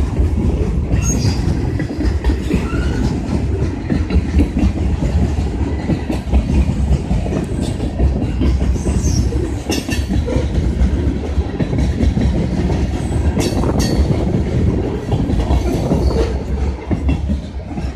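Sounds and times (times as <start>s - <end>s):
railroad cars rumbling: 0.0s - 17.9s
wheels clacking over rail joints: 0.0s - 17.9s.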